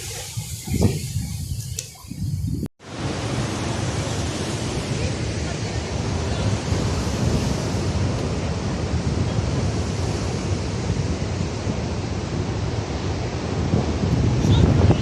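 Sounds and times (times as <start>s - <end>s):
surf washing against shore: 0.0s - 15.0s
wind buffeting microphone: 0.0s - 15.0s.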